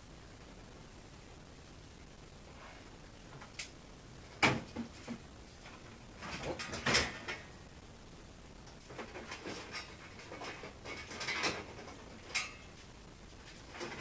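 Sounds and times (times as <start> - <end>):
clatter of refrigerator parts: 4.3 - 7.5, 8.7 - 12.8, 13.4 - 14.0.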